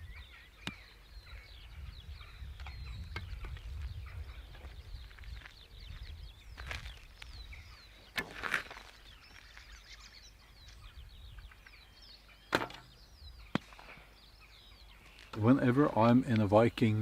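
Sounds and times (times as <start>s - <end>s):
birds chirping and twittering: 0.0s - 17.0s.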